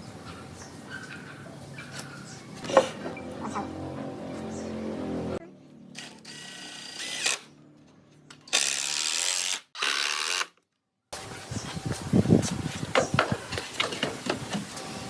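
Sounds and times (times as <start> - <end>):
power tool motor spinning up: 6.0 - 7.5.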